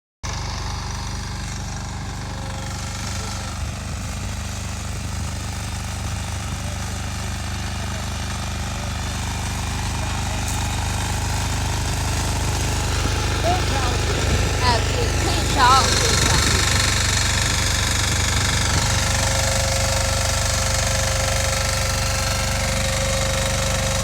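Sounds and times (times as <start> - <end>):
walking tractor engine running: 8.7 - 24.0.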